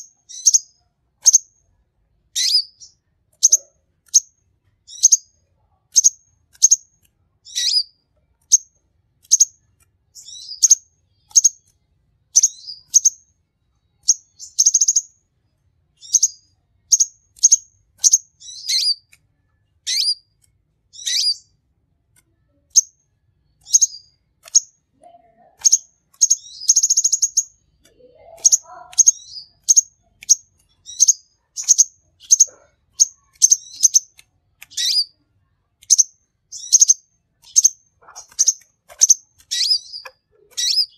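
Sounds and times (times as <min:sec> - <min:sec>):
sunbird chirping: 0:00.0 - 0:01.5, 0:02.4 - 0:04.3, 0:04.9 - 0:05.3, 0:05.9 - 0:07.9, 0:10.2 - 0:11.7, 0:12.3 - 0:13.2, 0:14.0 - 0:15.2, 0:16.0 - 0:19.0, 0:19.9 - 0:20.2, 0:20.9 - 0:21.5, 0:23.6 - 0:24.8, 0:25.6 - 0:35.2, 0:35.8 - 0:40.9.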